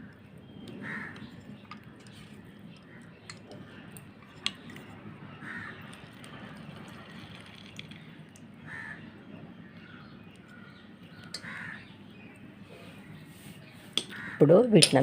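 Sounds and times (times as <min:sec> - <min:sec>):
crows cawing: 0:00.8 - 0:01.3, 0:05.3 - 0:07.3, 0:08.6 - 0:09.2, 0:09.8 - 0:12.0, 0:14.0 - 0:14.6.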